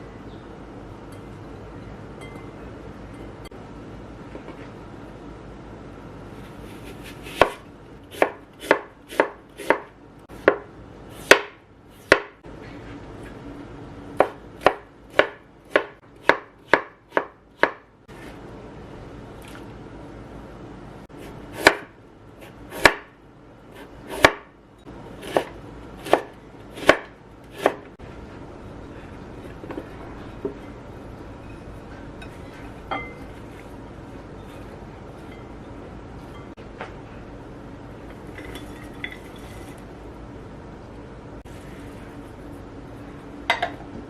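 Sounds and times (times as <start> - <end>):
knife chopping on cutting board: 6.9 - 12.4, 14.2 - 17.8, 21.2 - 23.1, 23.8 - 24.5, 25.2 - 27.8.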